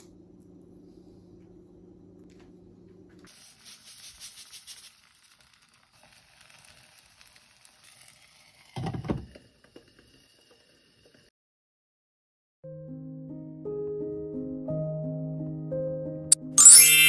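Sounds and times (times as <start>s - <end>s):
food sizzling in a pan: 3.3s - 11.3s.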